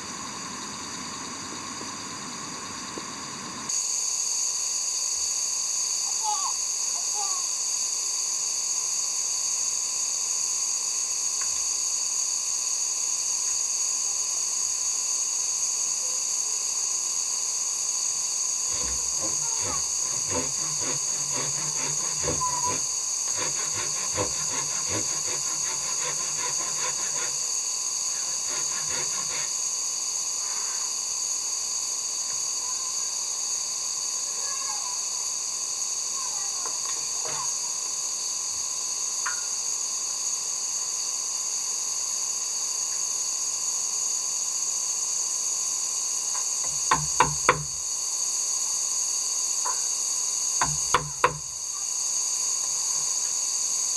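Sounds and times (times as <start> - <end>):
steady high-pitched hiss: 0.0 - 20.0.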